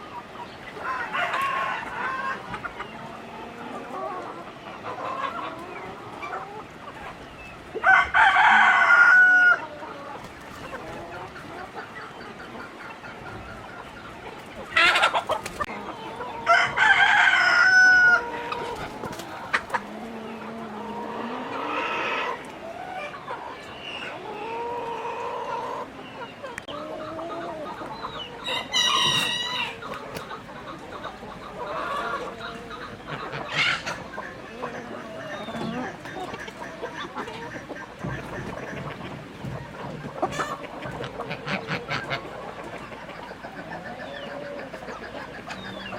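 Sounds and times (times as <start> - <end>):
chickens clucking: 0.0 - 45.9
rooster crowing: 7.8 - 9.6, 16.4 - 18.6, 28.4 - 29.8.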